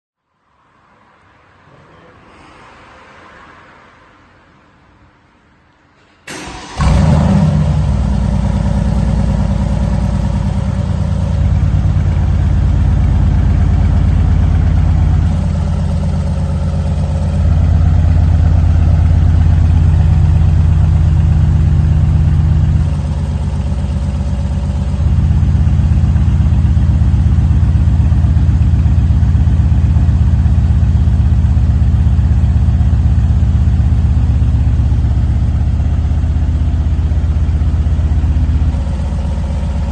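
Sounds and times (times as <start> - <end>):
car engine starting and idling: 6.0 - 39.9.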